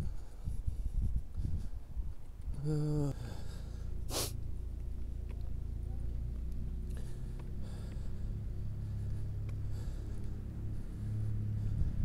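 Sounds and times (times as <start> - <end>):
vehicle engine idling: 2.6 - 12.0.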